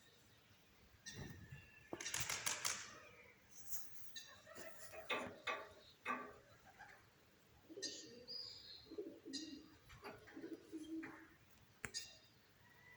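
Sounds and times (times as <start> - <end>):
small birds chirping: 0.0 - 2.3
doves cooing: 7.6 - 11.4.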